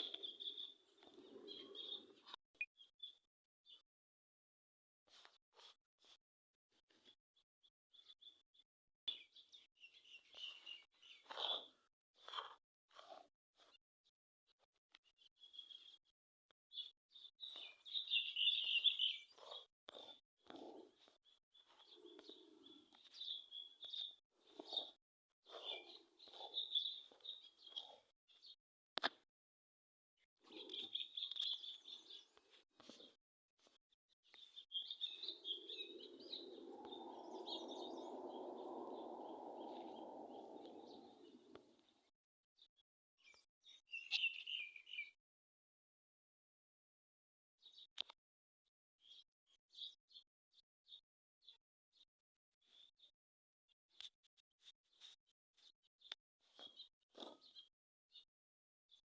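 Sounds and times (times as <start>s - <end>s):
birds chirping: 0.0s - 3.8s, 16.7s - 28.6s, 30.4s - 33.2s, 34.3s - 41.9s, 43.2s - 45.1s
low steady rushing noise: 36.1s - 41.4s.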